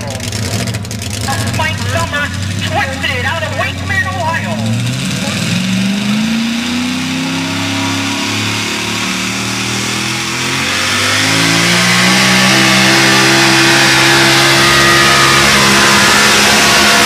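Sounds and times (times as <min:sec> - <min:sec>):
truck engine revving hard: 0:00.0 - 0:17.0.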